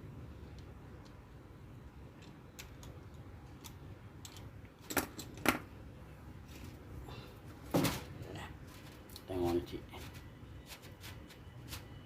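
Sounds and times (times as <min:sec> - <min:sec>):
plastic parts clicking and tapping: 0:02.2 - 0:05.7.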